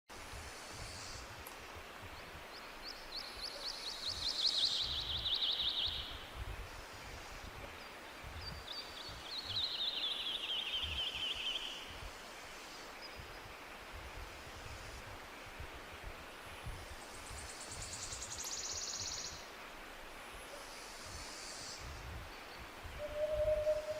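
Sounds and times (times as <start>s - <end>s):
steady background hiss: 0.1s - 23.9s.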